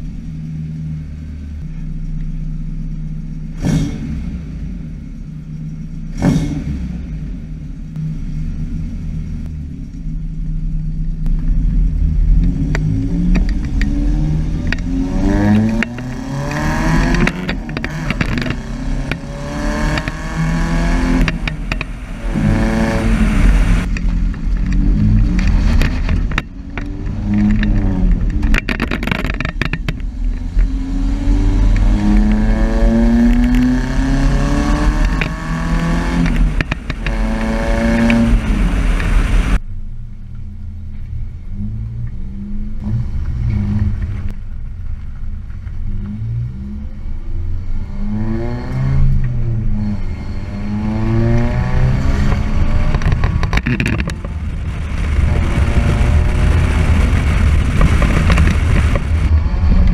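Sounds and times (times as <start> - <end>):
truck engine accelerating hard: 6.1 - 39.6, 47.9 - 59.9.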